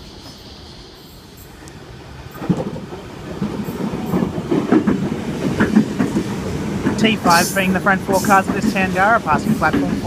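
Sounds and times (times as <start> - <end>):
electric train passing: 0.0 - 10.0
wheels clattering over rail joints: 2.3 - 10.0.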